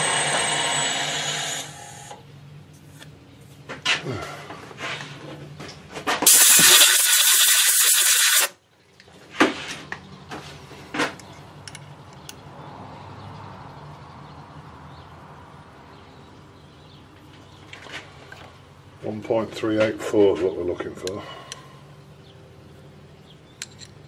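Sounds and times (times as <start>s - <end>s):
air blow gun hissing: 6.3s - 8.5s.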